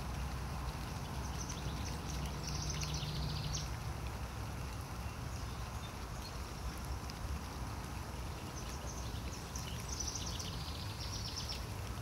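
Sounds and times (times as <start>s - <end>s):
steady rain hiss: 0.0s - 12.0s
bird chirping: 1.0s - 3.7s, 8.5s - 11.7s.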